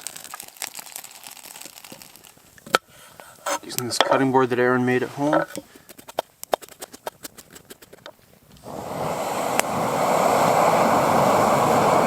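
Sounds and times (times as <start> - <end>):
food sizzling in a pan: 0.0 - 2.4.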